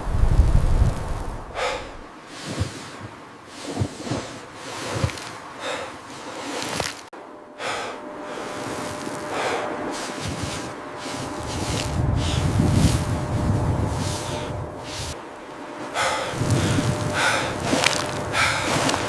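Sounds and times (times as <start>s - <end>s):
rustling: 0.0s - 7.1s, 8.4s - 19.0s
person breathing hard: 1.5s - 3.0s, 4.1s - 6.8s, 7.6s - 15.2s, 15.8s - 19.0s.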